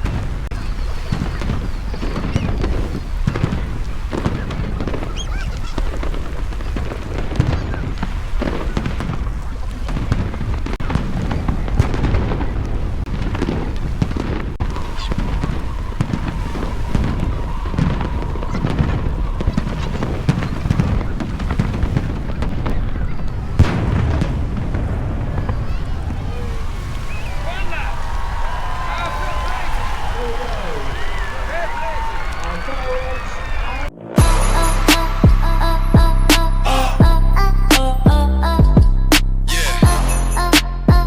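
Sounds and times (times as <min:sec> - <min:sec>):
fireworks bangs and crackles: 0:00.0 - 0:41.0
low rumble: 0:33.8 - 0:40.3
steady high tone: 0:33.9 - 0:38.1.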